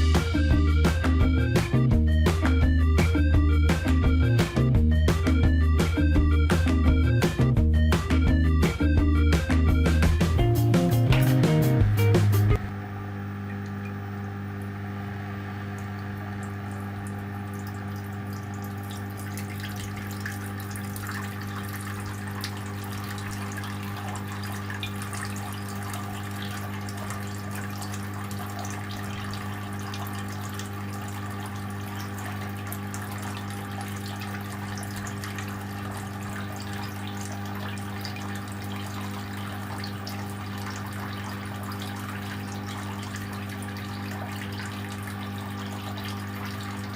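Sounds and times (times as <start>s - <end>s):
water pump humming: 0.0s - 46.9s
water trickling and splashing: 15.8s - 46.9s.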